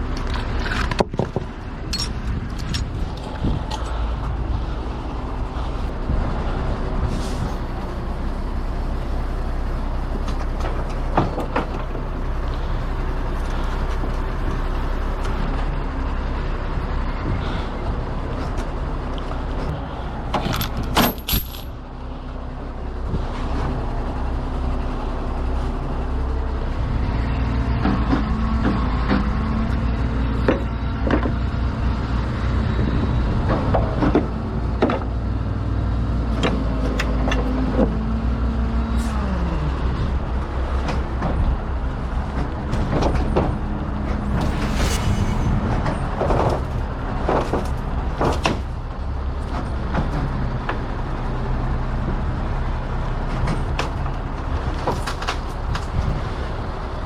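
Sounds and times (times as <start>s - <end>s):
truck diesel engine running: 0.0s - 34.7s, 39.1s - 54.8s
short sharp hiss: 44.4s - 45.6s.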